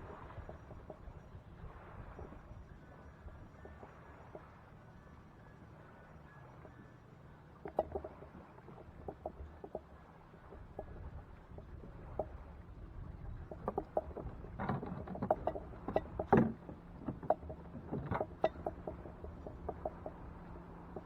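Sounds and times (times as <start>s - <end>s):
knocks and clicks on kayak: 0.0s - 1.1s, 7.6s - 12.5s, 13.3s - 21.0s.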